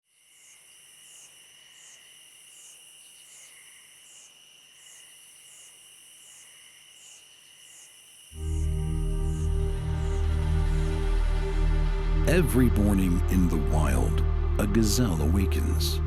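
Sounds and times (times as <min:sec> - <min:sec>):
crickets trilling: 0:00.1 - 0:11.0
higher chirping pulse: 0:08.4 - 0:16.0.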